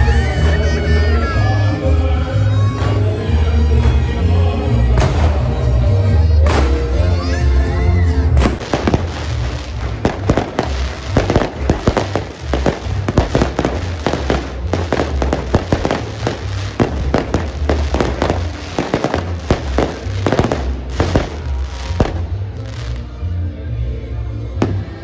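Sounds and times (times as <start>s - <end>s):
music playing: 0.0s - 25.0s
fireworks bangs and crackles: 8.4s - 23.1s, 24.6s - 25.0s.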